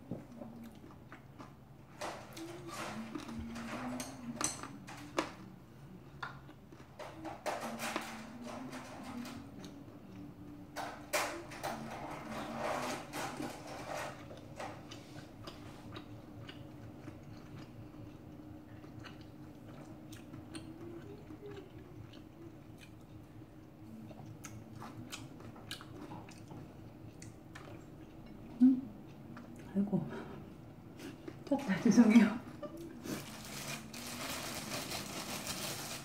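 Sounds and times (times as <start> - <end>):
crunching and chewing food: 0.1 - 7.1, 12.4 - 29.8, 33.0 - 36.0.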